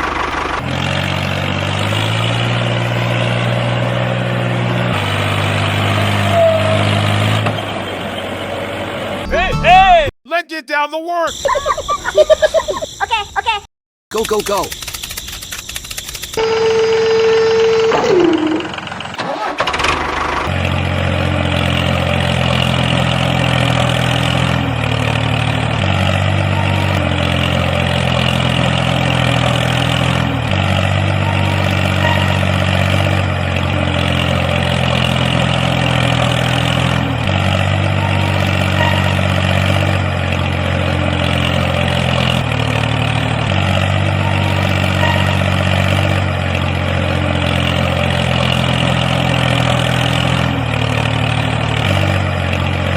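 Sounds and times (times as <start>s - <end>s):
tractor engine idling: 0.0s - 1.8s, 14.1s - 52.9s.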